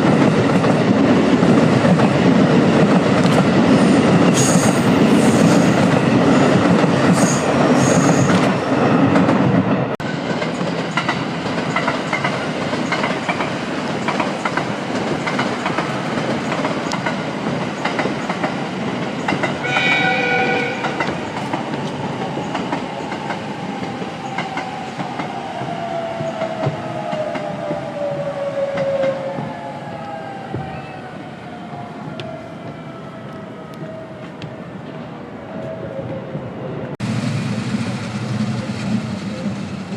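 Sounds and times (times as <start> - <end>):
rail car clickety-clack: 0.0 - 30.8, 36.9 - 39.9
electric train passing: 0.0 - 39.9
train horn blast: 19.6 - 21.2.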